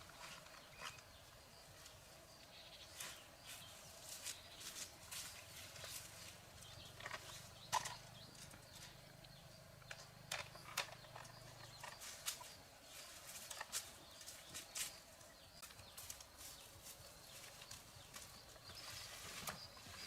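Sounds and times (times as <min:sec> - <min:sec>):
hand tools clicking and knocking: 0:09.8 - 0:12.5.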